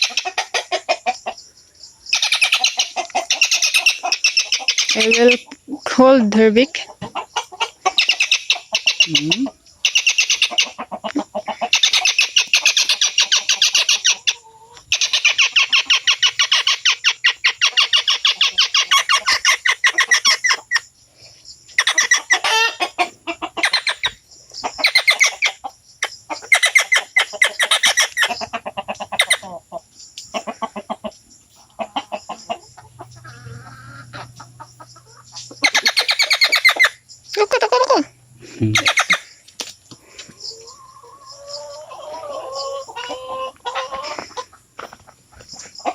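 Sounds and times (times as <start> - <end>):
bird rattling distress calls: 38.8 - 39.2.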